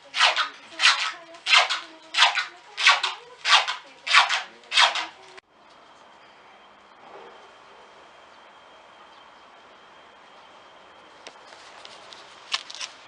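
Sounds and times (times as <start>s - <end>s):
rhythmic scraping swishes: 0.0s - 5.4s.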